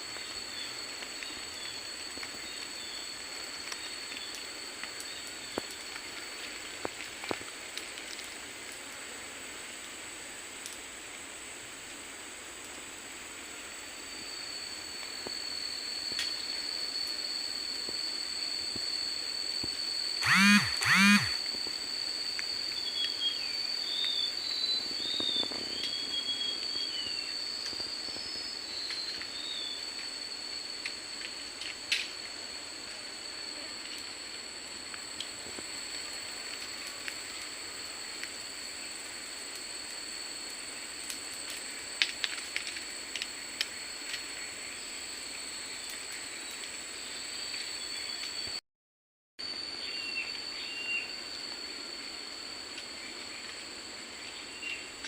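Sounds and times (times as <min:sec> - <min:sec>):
high-pitched insect drone: 0:00.0 - 0:10.2, 0:13.2 - 0:48.6, 0:49.4 - 0:55.0
loud animal calls: 0:20.2 - 0:21.4.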